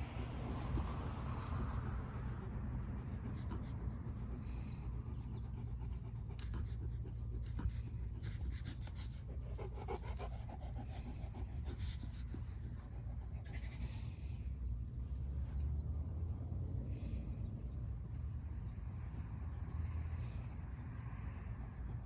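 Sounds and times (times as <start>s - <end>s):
dog panting: 0.0s - 15.4s
steady low rumble: 0.0s - 22.0s.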